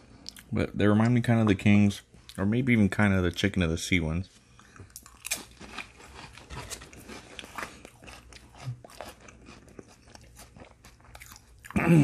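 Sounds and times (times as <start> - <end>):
crisp cracker crunching: 4.9 - 11.8.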